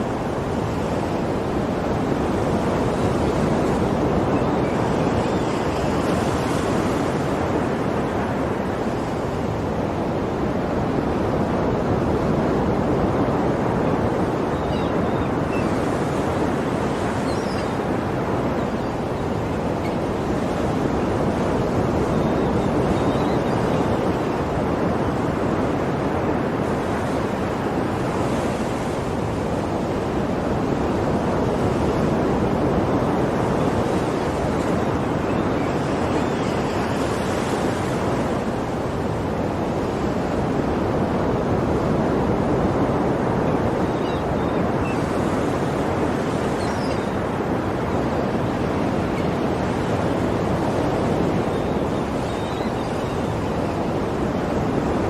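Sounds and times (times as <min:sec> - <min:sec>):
sea waves washing onto shore: 0:00.0 - 0:55.0.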